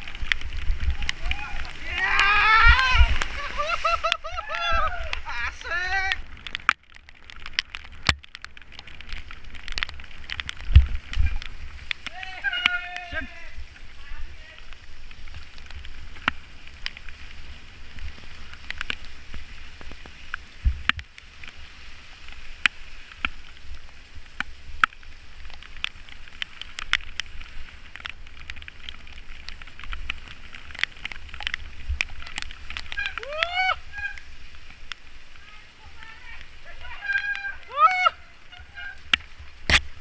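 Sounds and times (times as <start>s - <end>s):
sharp rain ticks: 0.0s - 40.0s
wet riding hiss: 0.9s - 6.1s.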